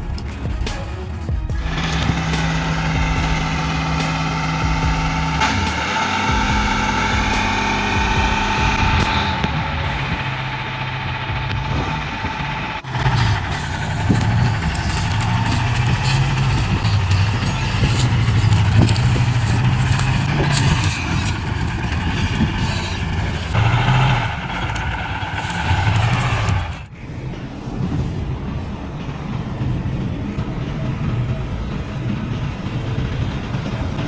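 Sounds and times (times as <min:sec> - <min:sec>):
heavy truck engine running: 0:00.0 - 0:34.0.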